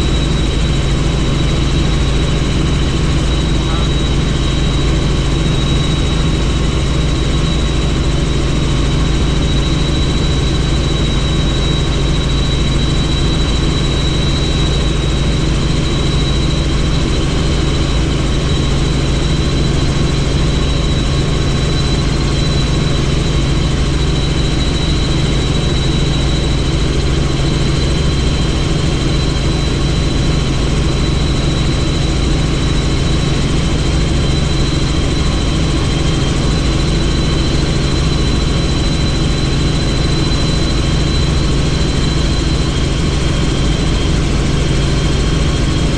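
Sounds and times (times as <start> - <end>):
high whine: 0.0 - 8.2
helicopter engine and rotor drone: 0.0 - 45.9.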